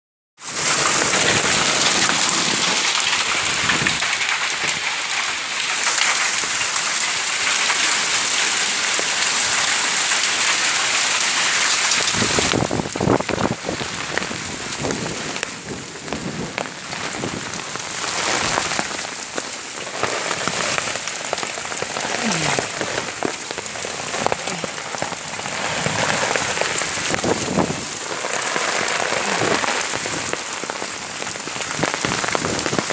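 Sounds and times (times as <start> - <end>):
heavy rain falling: 0.4 - 32.9
water splashing and dripping: 0.5 - 32.9.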